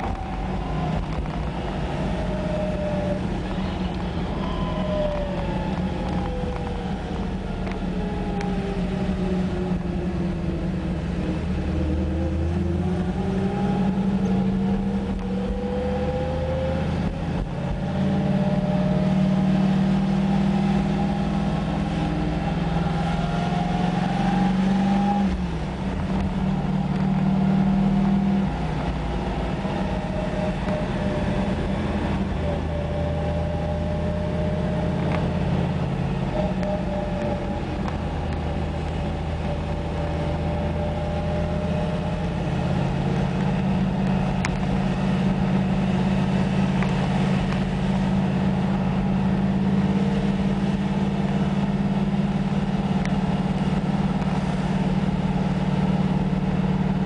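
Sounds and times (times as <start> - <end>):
car engine while driving: 0.0 - 57.0.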